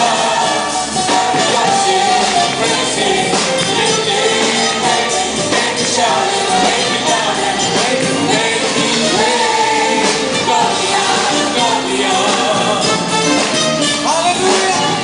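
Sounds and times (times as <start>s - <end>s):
band playing worship song: 0.0s - 15.0s
person singing: 14.0s - 15.0s.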